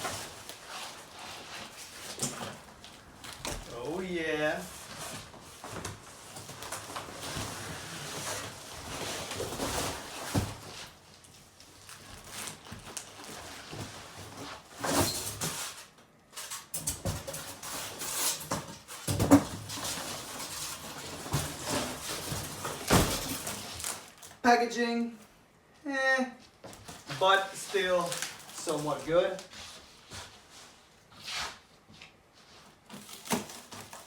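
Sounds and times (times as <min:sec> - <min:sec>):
packaging rustling and crinkling: 0:00.0 - 0:16.6, 0:17.4 - 0:24.4, 0:26.7 - 0:30.9, 0:32.6 - 0:34.0.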